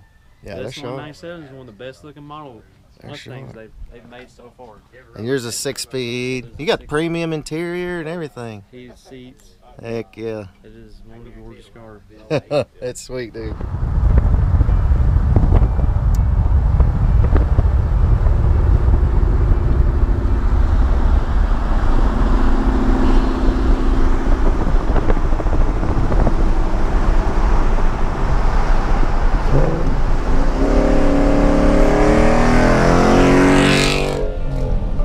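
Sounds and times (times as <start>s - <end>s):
car engine rumbling and revving: 13.4s - 35.0s.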